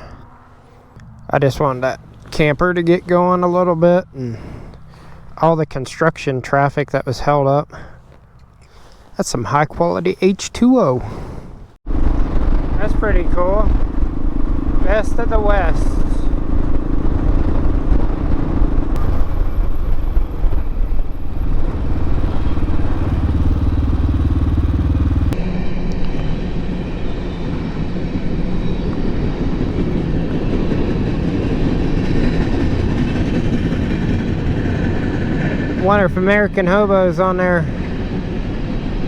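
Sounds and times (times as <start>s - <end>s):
motorcycle engine running: 11.8s - 27.7s
microphone rumble: 11.9s - 25.4s.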